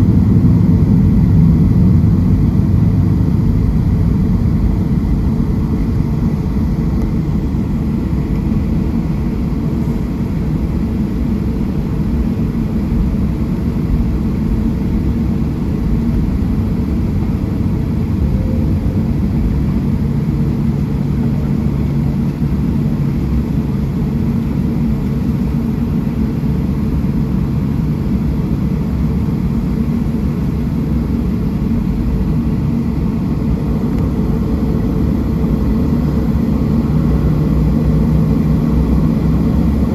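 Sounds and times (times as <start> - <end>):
jet engine rumble in cabin: 0.0 - 39.9
faint low hum: 14.9 - 22.2.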